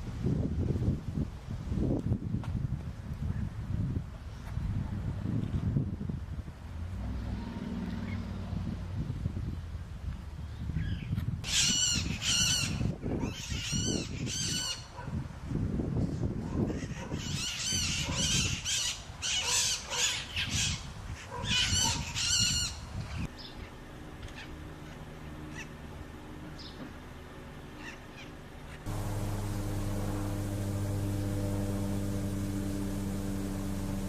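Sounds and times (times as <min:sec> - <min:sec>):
low background rumble: 0:28.9 - 0:34.0.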